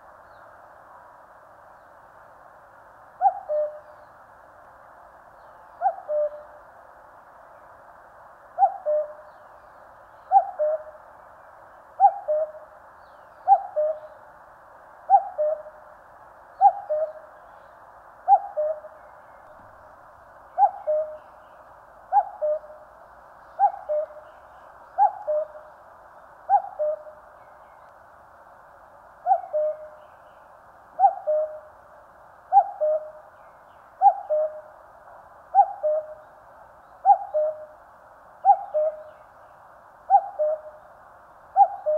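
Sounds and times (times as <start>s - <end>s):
cuckoo calling: 3.2s - 3.9s, 5.8s - 6.5s, 8.6s - 9.2s, 10.2s - 10.9s, 12.0s - 12.7s, 13.4s - 14.2s, 15.1s - 15.8s, 16.6s - 17.3s, 18.3s - 19.0s, 20.6s - 21.4s, 22.1s - 22.8s, 23.6s - 25.7s, 26.5s - 27.2s, 29.2s - 30.0s, 31.0s - 31.7s, 32.5s - 33.2s, 34.0s - 34.7s, 35.6s - 36.3s, 37.0s - 37.7s, 38.4s - 39.2s, 40.1s - 40.8s, 41.6s - 41.9s.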